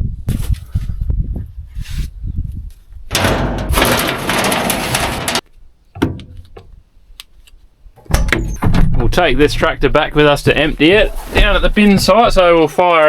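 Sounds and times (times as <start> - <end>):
metal panels knocking: 3.1 - 5.4, 6.0 - 6.7, 8.0 - 9.5.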